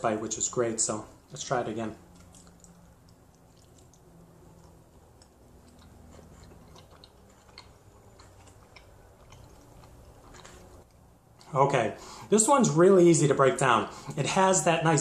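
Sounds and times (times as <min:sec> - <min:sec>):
person chewing: 0:02.0 - 0:11.6.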